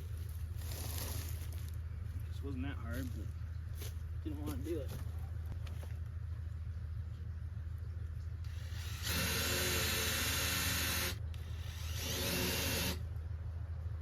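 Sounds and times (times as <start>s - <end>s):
power drill running: 8.4s - 13.0s.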